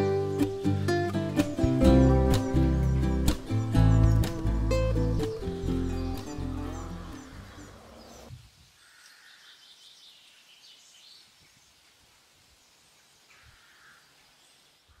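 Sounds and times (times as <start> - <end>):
background music: 0.0 - 7.9
faint birds chirping: 0.0 - 15.0.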